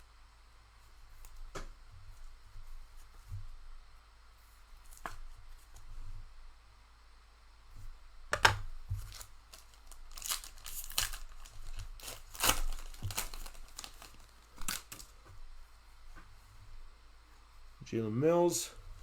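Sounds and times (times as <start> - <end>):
card pack wrapper tearing and crinkling: 9.0 - 15.1.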